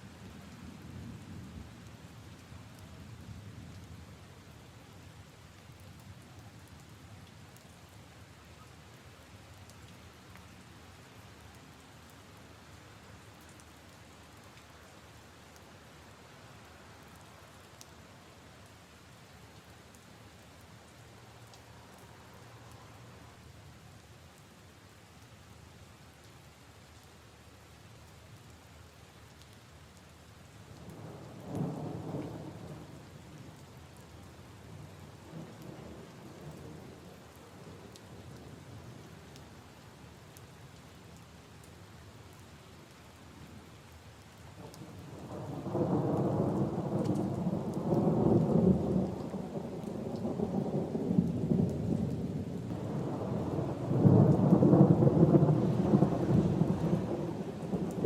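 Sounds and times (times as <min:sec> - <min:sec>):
steady rain falling: 0:00.0 - 0:58.0
rolling thunder: 0:45.3 - 0:58.0.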